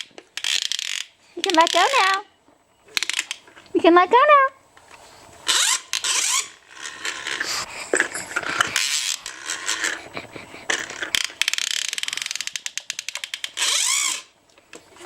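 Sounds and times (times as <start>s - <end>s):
toy mechanism rapid clicks: 0.0s - 2.2s, 2.9s - 3.5s, 5.4s - 14.4s.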